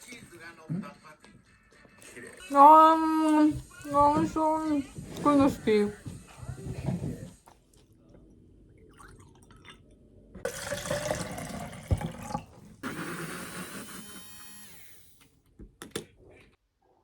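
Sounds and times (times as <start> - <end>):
tap water filling a container: 10.4 - 12.8.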